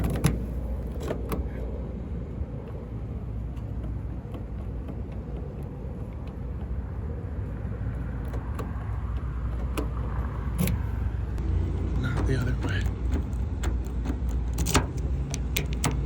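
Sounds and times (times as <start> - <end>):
steady low rumble: 0.0 - 16.0
lock picking clicks: 12.9 - 16.0.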